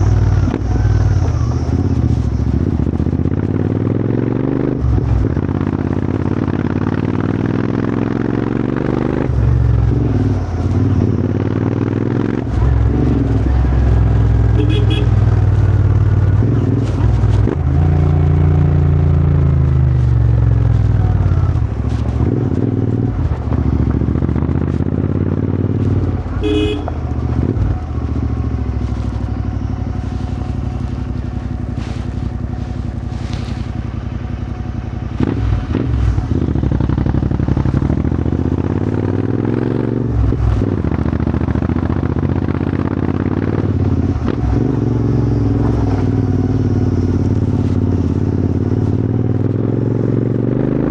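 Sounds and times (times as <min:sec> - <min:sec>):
motorcycle engine revving: 0:00.0 - 0:50.9
horn beep: 0:14.5 - 0:15.2, 0:26.4 - 0:27.1.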